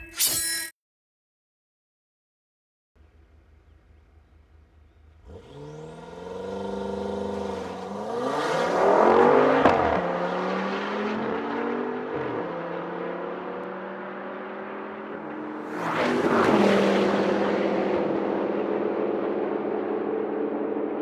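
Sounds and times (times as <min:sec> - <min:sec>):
race cars accelerating: 0:05.0 - 0:21.0.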